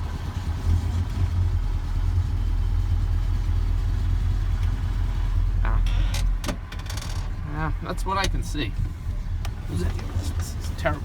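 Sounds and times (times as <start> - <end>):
pickup truck engine running: 0.0 - 8.3.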